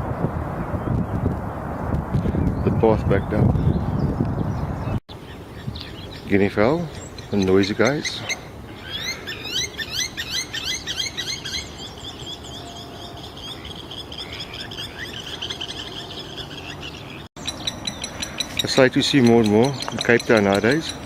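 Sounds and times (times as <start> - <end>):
guineafowl calling harshly: 7.2 - 21.0.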